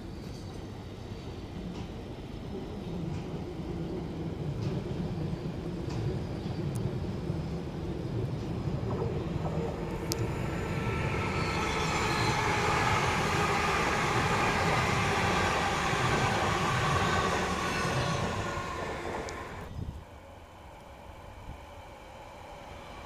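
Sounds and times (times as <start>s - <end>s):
electric train passing: 3.0s - 23.0s.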